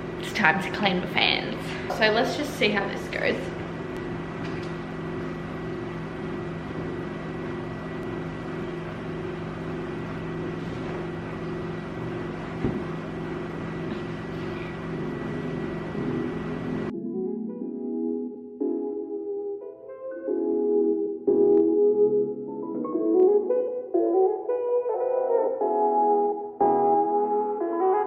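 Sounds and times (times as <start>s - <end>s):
machine hum with pulsing tone: 0.0s - 19.2s
thin high whine: 1.6s - 16.9s.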